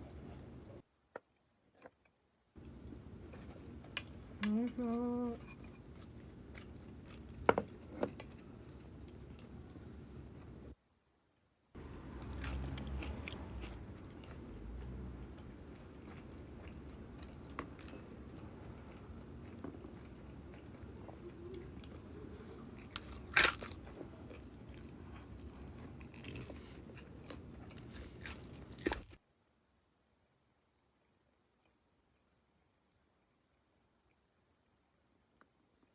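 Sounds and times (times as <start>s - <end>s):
crunchy food chewing: 5.5s - 10.7s, 11.8s - 29.2s.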